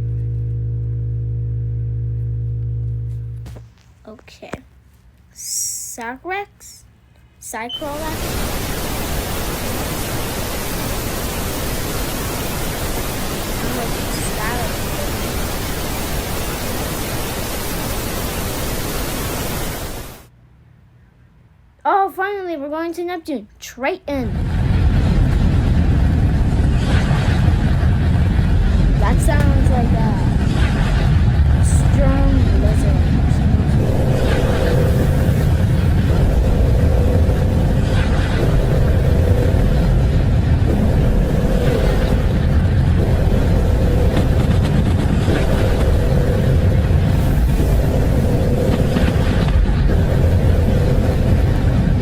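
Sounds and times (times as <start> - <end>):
low rumbling roar: 0.0 - 3.5, 24.3 - 52.0
faint steady hum: 0.0 - 52.0
steady static hiss: 0.0 - 52.0.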